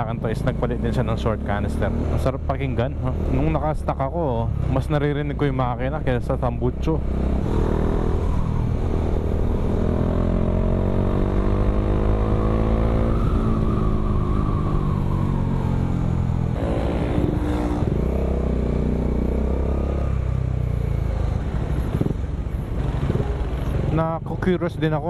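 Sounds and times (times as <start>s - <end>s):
motorcycle engine accelerating: 0.0s - 24.9s.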